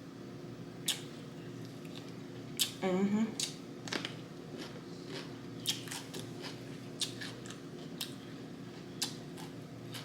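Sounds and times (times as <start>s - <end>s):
steady low hum: 0.0s - 10.0s
person chewing crunchy food: 3.4s - 10.0s.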